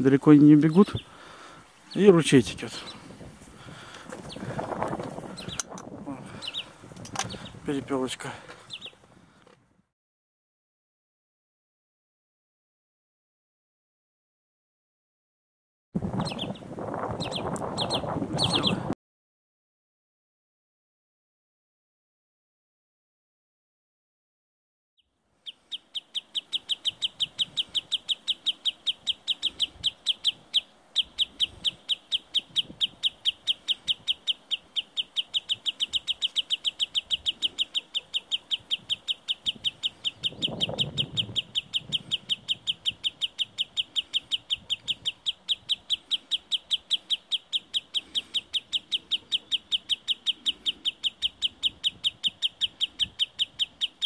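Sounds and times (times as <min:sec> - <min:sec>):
sandpiper alarm call: 0:17.2 - 0:18.8, 0:25.5 - 0:54.0.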